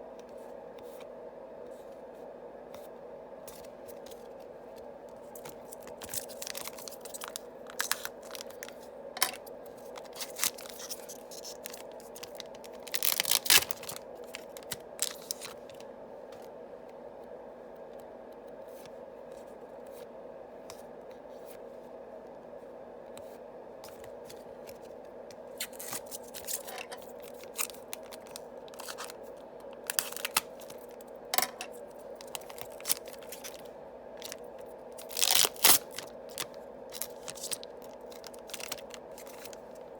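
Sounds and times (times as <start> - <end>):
faint steady hum: 0.0 - 39.9
foil packs tearing and crinkling: 5.3 - 15.6, 25.6 - 39.7.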